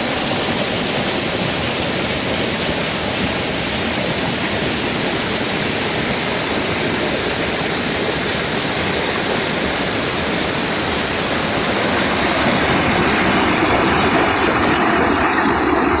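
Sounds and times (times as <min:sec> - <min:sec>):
river water roaring: 0:00.0 - 0:16.0.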